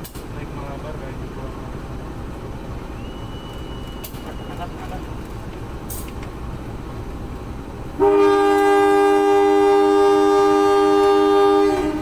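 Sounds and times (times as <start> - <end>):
locomotive air horn blast: 8.0 - 12.0.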